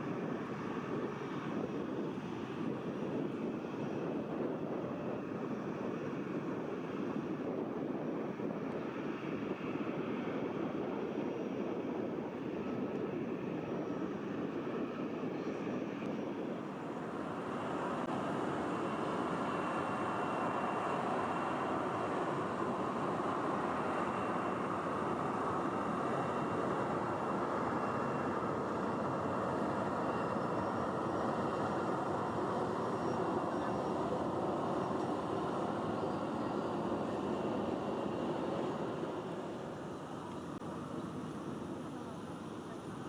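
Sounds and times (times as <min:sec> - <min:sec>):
distant jet engines rushing: 0:00.0 - 0:43.0
electric train rumbling: 0:16.6 - 0:40.4.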